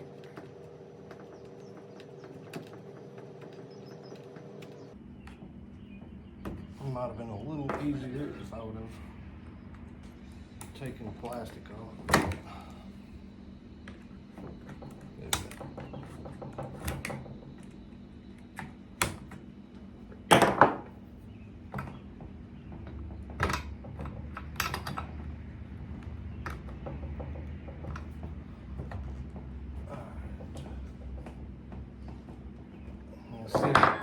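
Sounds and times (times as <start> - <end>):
tools and parts clicking and knocking: 0.0 - 6.7, 13.8 - 21.1, 21.7 - 34.0.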